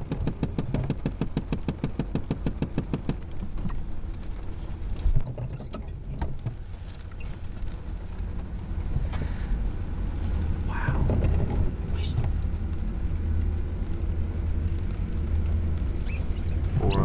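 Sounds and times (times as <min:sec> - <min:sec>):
rapid even clicking: 0:00.0 - 0:03.8
diesel engine rumbling: 0:00.0 - 0:17.0.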